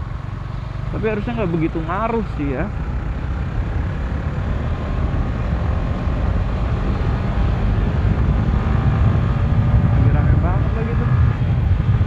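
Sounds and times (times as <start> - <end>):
faint motorcycle engine: 0.0 - 7.3
wind rushing over microphone: 2.8 - 12.0.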